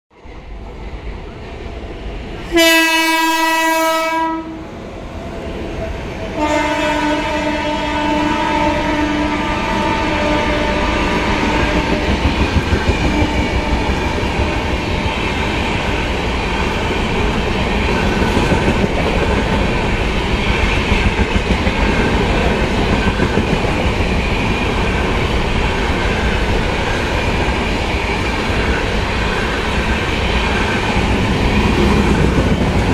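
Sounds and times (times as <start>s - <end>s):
train rumble: 0.2s - 32.9s
locomotive horn blast: 2.5s - 4.6s, 6.3s - 12.0s
train wheels clickety-clack: 10.8s - 32.9s.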